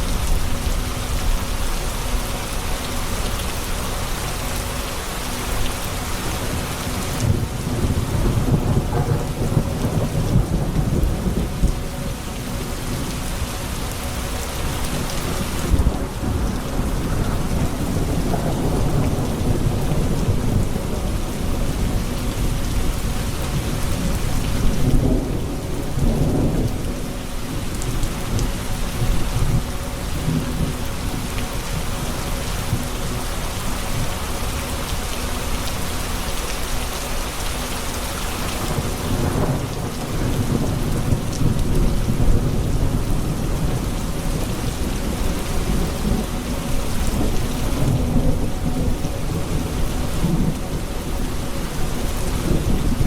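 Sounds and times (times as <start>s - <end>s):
heavy rain: 0.0s - 53.0s
rolling thunder: 7.2s - 12.0s, 14.8s - 31.3s.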